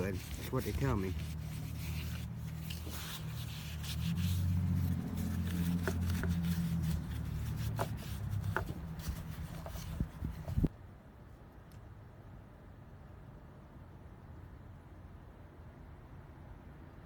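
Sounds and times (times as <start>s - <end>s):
light clicks and rubbing: 0.0s - 10.7s.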